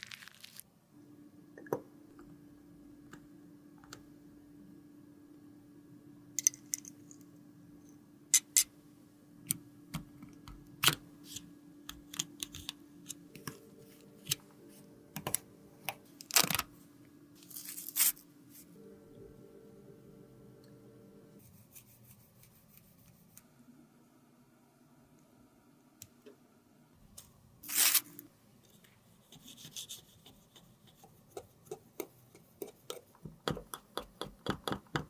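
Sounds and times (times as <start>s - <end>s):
faint steady hum: 0.6s - 35.0s.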